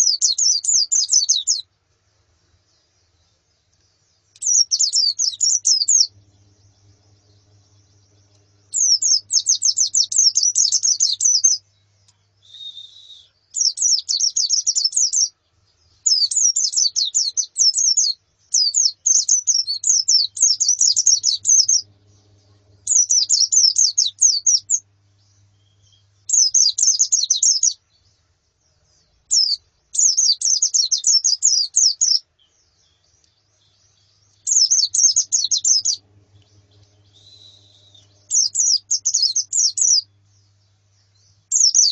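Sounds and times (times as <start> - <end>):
birds twittering: 0.0 - 41.9
short lower bird call: 12.4 - 14.9, 36.6 - 40.1.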